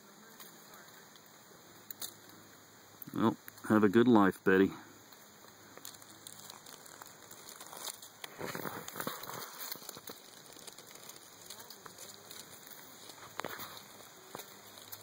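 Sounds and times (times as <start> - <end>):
dry leaves rustling and crackling: 4.9 - 15.0.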